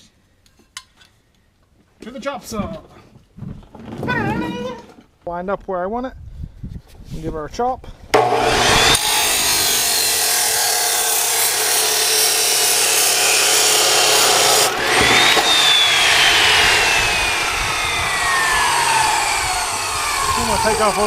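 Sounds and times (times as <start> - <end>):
chop saw cutting metal pipe: 8.2 - 21.0.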